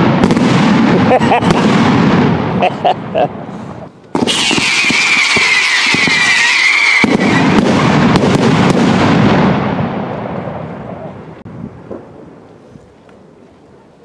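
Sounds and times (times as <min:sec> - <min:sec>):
firework crackling and bangs: 0:00.0 - 0:02.6, 0:04.1 - 0:11.0
firework whistle: 0:04.2 - 0:08.4.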